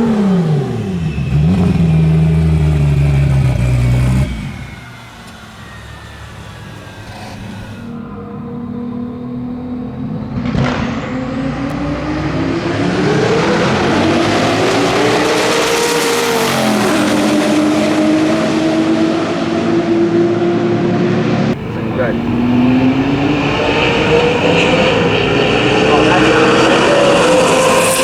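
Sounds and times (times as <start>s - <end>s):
race car accelerating hard: 0.0s - 28.0s.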